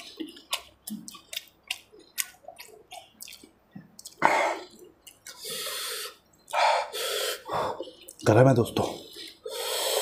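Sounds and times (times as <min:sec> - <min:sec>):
open-mouth chewing: 0:00.0 - 0:10.0.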